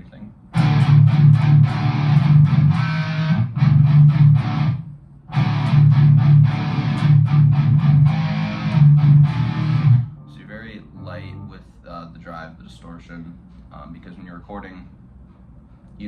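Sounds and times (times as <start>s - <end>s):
distorted electric guitar riff: 0.6s - 10.4s.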